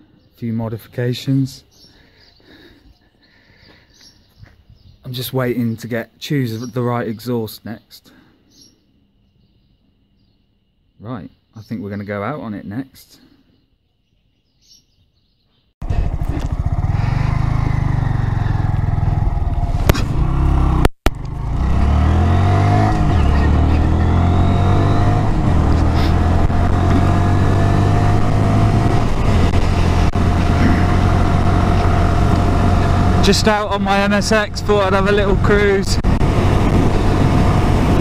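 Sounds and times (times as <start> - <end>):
motorcycle engine accelerating: 15.8 - 38.0.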